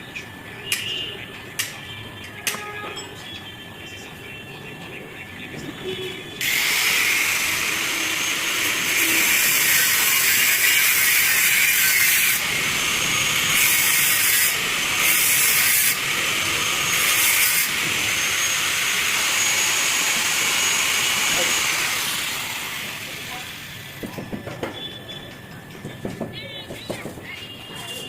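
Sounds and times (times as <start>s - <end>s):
loud steady hiss: 6.4s - 24.0s.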